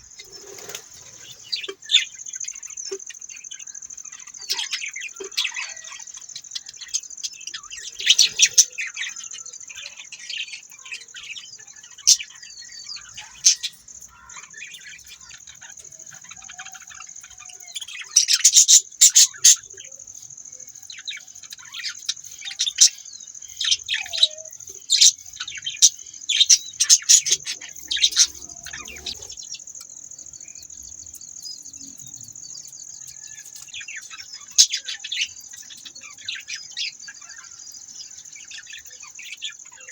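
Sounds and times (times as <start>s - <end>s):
steady high-pitched hiss: 0.0s - 39.9s
budgerigars chirping: 4.0s - 20.1s, 20.9s - 29.6s, 33.2s - 37.7s.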